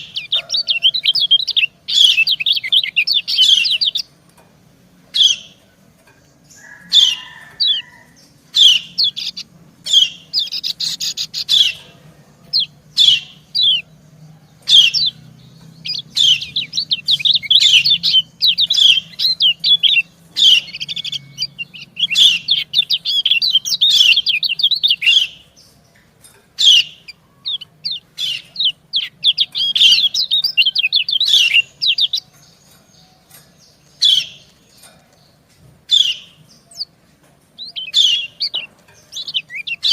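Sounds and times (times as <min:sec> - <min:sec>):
rapid bird twittering: 0:00.0 - 0:04.2, 0:14.6 - 0:25.8, 0:26.6 - 0:37.0, 0:37.6 - 0:39.9.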